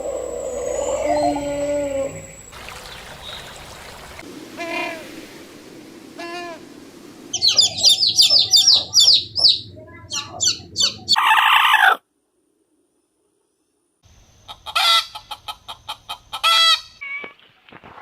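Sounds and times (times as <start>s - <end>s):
birds chirping: 0.0s - 4.2s, 7.3s - 11.4s.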